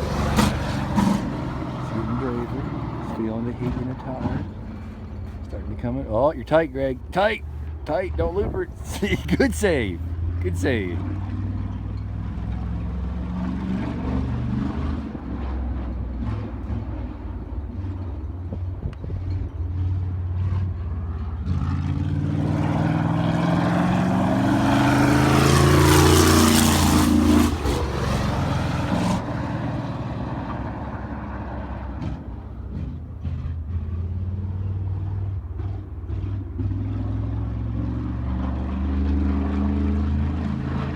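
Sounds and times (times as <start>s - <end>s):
race car engine passing by: 19.8s - 40.9s.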